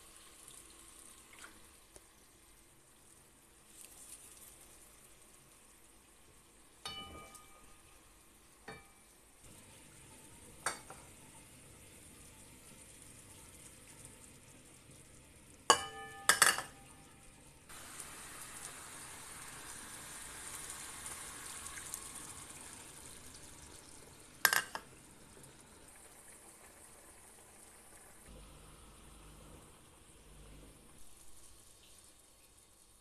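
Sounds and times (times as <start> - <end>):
chicken wings sizzling in a wok: 7.6 - 33.0.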